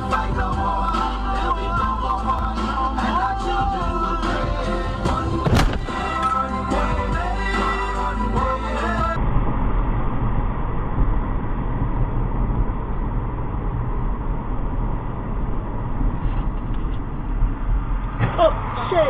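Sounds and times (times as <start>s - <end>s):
music: 0.0s - 9.2s
muffled moving vehicle rumble: 5.1s - 6.2s, 9.2s - 19.0s.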